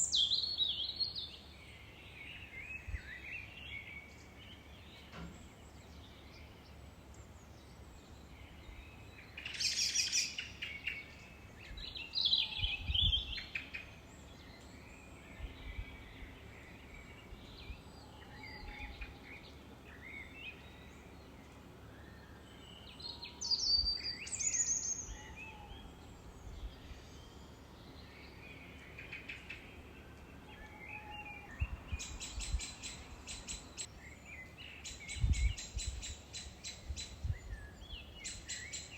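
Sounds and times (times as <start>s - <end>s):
faint outdoor hiss: 0.0s - 38.9s
birds chirping and singing: 8.5s - 38.9s.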